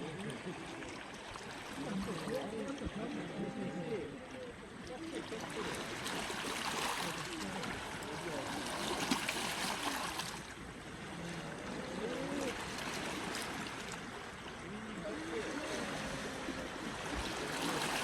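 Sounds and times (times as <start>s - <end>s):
faint voices: 0.0s - 8.9s, 10.9s - 18.0s
sea waves washing ashore: 4.6s - 18.0s.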